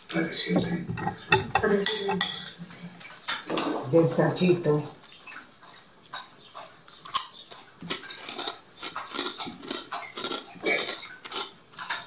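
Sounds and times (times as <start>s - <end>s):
wet chewing mouth noises: 5.0s - 12.0s.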